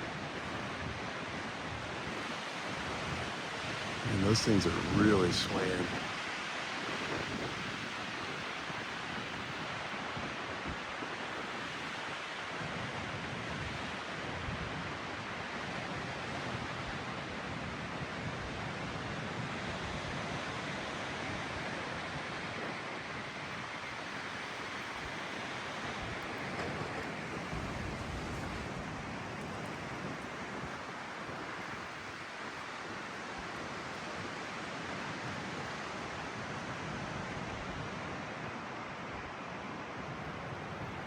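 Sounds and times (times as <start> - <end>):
strong wind blowing: 0.1 - 6.2, 22.6 - 34.4
wind buffeting microphone: 24.8 - 32.0.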